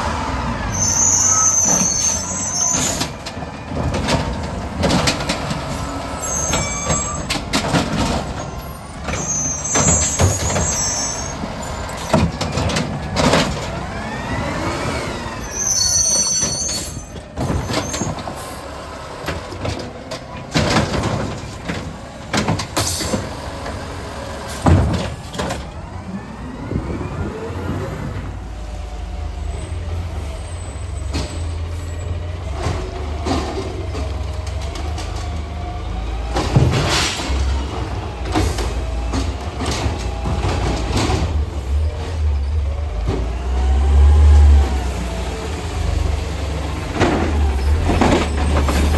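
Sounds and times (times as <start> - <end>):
garbage truck engine: 0.0 - 48.9
air brake squeals: 0.6 - 3.2, 5.8 - 7.5, 8.4 - 12.2, 15.1 - 18.7, 36.9 - 37.5.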